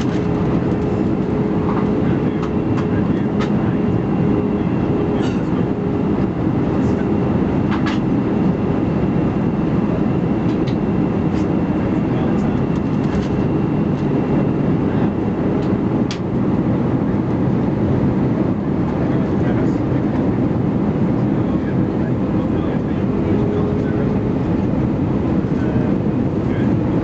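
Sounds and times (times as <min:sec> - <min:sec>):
airliner cabin rumble: 0:00.0 - 0:27.0.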